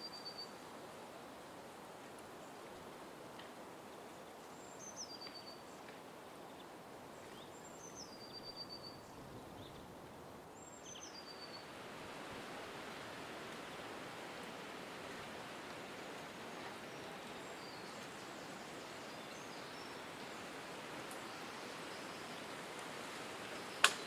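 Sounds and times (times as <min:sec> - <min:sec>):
songbird singing trill: 0:00.0 - 0:00.6, 0:04.6 - 0:05.8, 0:06.5 - 0:09.9, 0:10.6 - 0:11.7, 0:16.7 - 0:20.4
steady outdoor hiss: 0:00.0 - 0:24.0.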